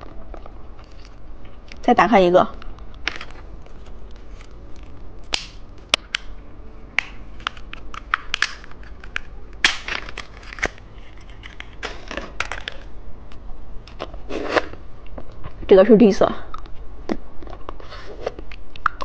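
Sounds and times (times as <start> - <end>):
plastic packaging crinkling and tearing: 0.3 - 1.8, 2.8 - 6.3, 7.0 - 12.9
sharp clicks and snaps: 18.4 - 19.0.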